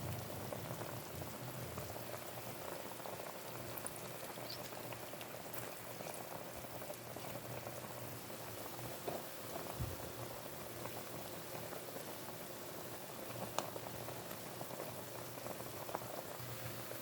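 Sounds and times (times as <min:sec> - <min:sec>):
sauce bubbling in a pot: 0:00.0 - 0:17.0.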